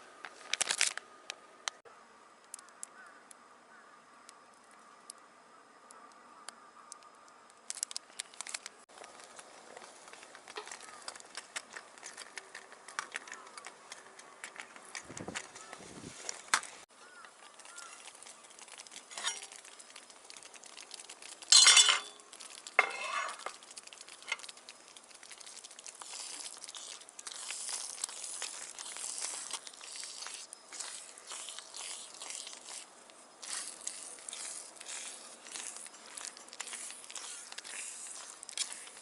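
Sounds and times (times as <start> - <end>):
crackling and rustling: 0.2 - 1.8, 6.9 - 39.0
sharp clink with ringing: 21.6 - 22.2.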